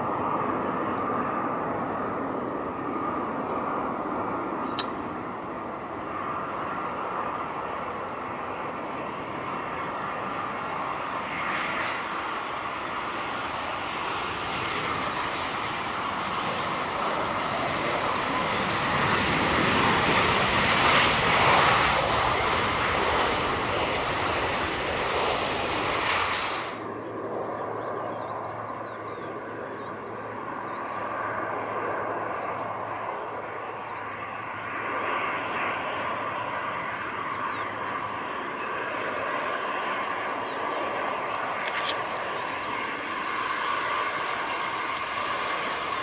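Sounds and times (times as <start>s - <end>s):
jet airliner engine roar: 0.0s - 46.0s
steady high-pitched buzz: 0.0s - 46.0s
faint chirps: 27.8s - 31.2s, 37.2s - 38.9s.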